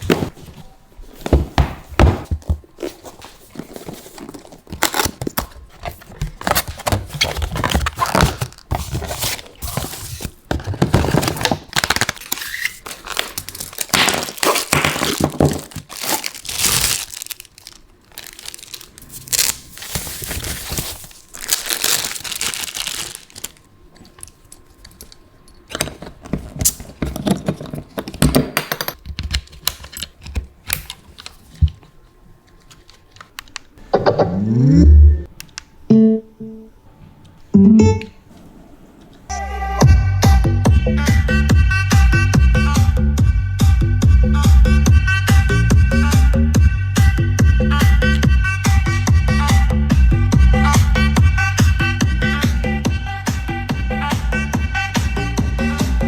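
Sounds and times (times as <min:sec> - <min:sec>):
packaging crinkling and tearing: 0:03.6 - 0:23.7.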